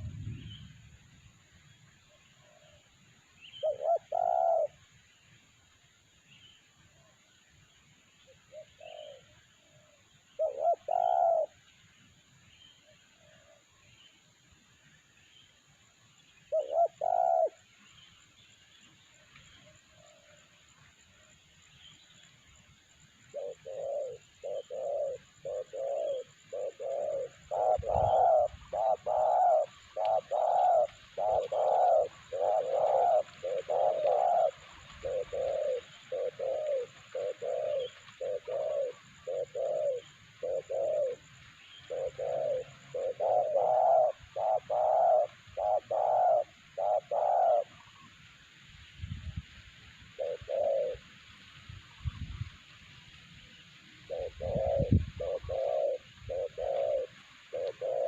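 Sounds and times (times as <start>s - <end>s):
dove cooing: 0.0s - 0.6s, 3.4s - 4.9s, 8.3s - 11.7s, 16.5s - 17.8s, 23.3s - 48.2s, 50.1s - 51.2s, 54.0s - 58.0s.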